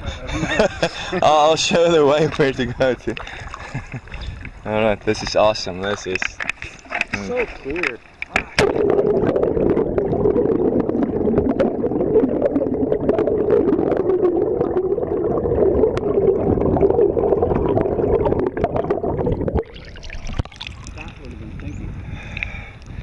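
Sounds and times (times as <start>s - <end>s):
muffled underwater rushing: 0.0s - 22.4s
sharp underwater clicks: 5.2s - 7.2s, 19.6s - 23.0s.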